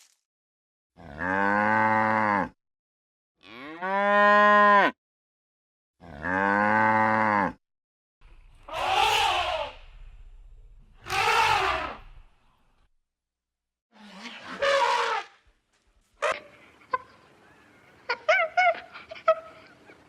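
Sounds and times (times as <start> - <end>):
cow mooing: 1.0 - 2.6, 3.4 - 5.0, 6.0 - 7.6.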